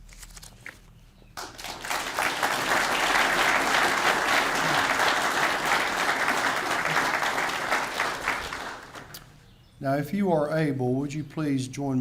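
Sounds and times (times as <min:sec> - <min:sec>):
audience applauding: 0:01.4 - 0:09.2.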